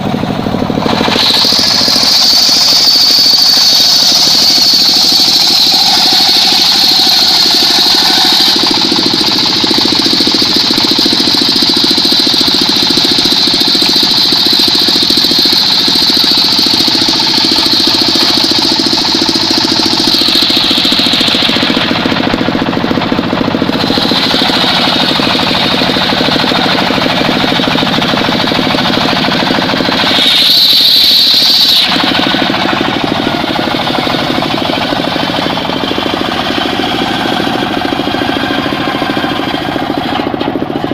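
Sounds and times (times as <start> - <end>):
engine chugging: 0.0 - 40.9
saw blade whining: 0.0 - 40.9.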